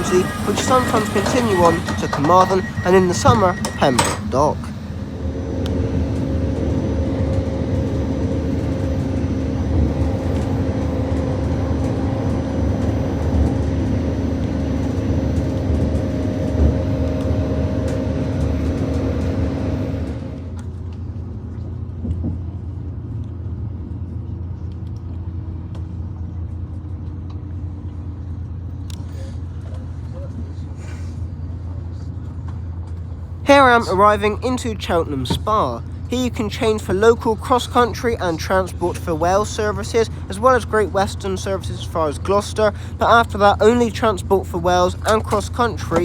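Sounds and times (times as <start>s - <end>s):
faint falling whine: 0.0s - 24.6s
diesel engine hum: 0.0s - 46.0s
train rumble: 0.0s - 46.0s.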